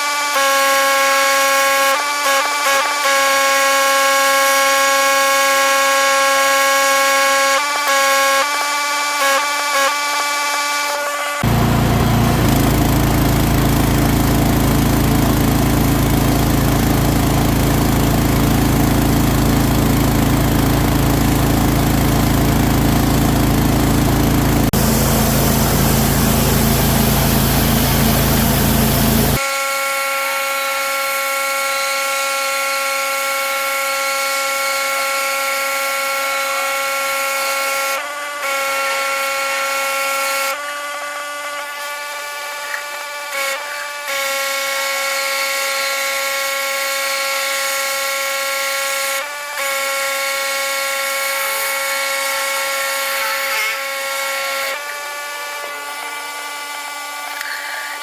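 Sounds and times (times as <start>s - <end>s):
pressure washer engine drone: 11.4s - 29.4s
high-pitched whine: 24.8s - 29.4s
water spray hissing: 24.8s - 29.4s.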